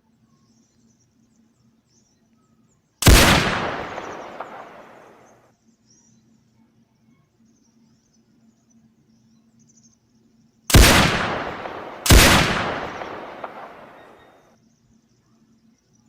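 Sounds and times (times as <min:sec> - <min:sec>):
rifle shots: 0:03.0 - 0:05.4, 0:10.7 - 0:14.4
rolling echo of gunshots: 0:03.0 - 0:05.4, 0:10.7 - 0:14.4.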